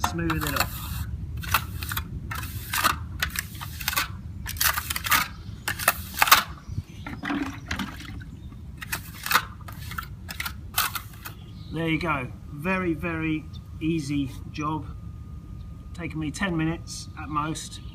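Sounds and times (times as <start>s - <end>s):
hand float scraping wet cement: 0.0s - 6.5s, 8.8s - 11.4s.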